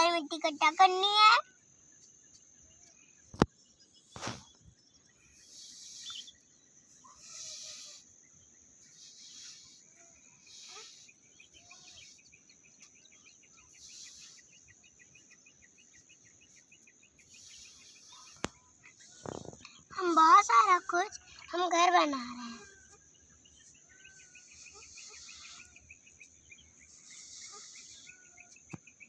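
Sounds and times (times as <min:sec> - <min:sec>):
bird chirps: 0:00.0 - 0:29.0
short hissing scraping bursts: 0:04.1 - 0:04.6, 0:05.2 - 0:08.2, 0:08.8 - 0:12.5, 0:13.7 - 0:15.3, 0:16.4 - 0:20.7, 0:23.6 - 0:26.2, 0:26.8 - 0:28.6
faint rapid chirring: 0:08.8 - 0:28.7.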